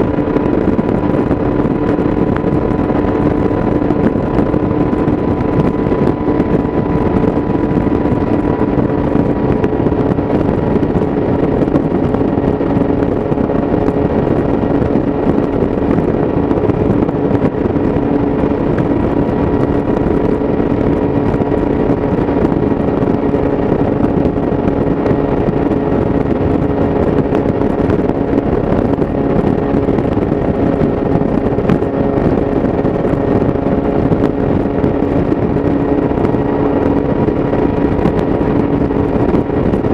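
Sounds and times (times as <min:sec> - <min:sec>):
motorcycle engine at high rpm: 0:00.0 - 0:39.9
wind and road noise: 0:00.0 - 0:39.9.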